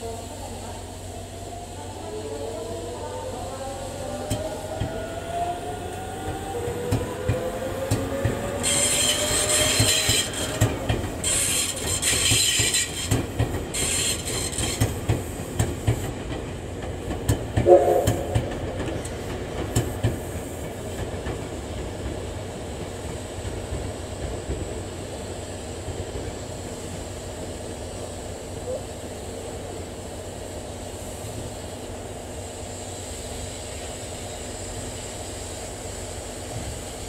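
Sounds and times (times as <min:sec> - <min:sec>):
train wheel clicks over rail joints: 0:06.9 - 0:21.9
short pitched tone: 0:17.7 - 0:18.4.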